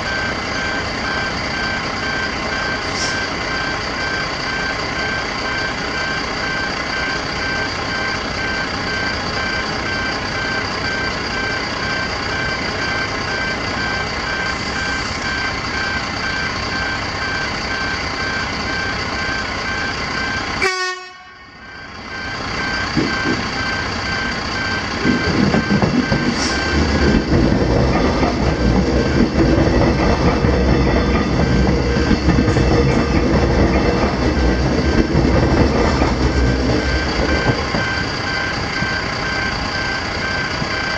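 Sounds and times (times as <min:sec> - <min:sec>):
gate warning alarms: 0:00.0 - 0:40.9
train rumbling: 0:22.0 - 0:40.9.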